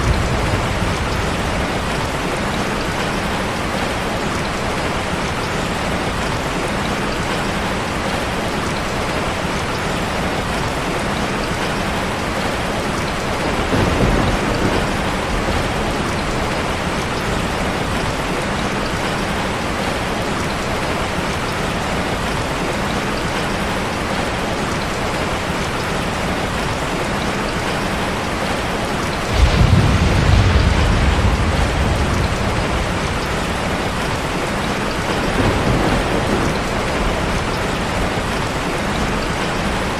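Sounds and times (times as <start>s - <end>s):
thunder rumbling: 0.0s - 5.4s, 11.8s - 19.9s, 29.2s - 39.9s
steady rainfall: 0.0s - 39.9s.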